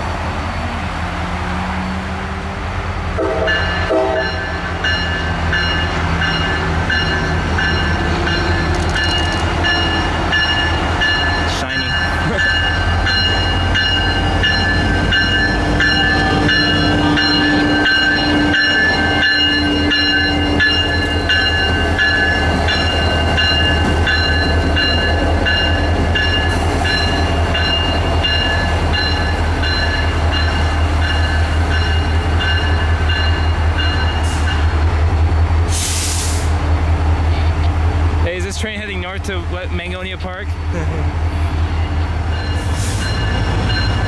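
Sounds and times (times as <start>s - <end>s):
train rumbling past: 0.0s - 44.0s
loud hiss: 35.7s - 36.6s.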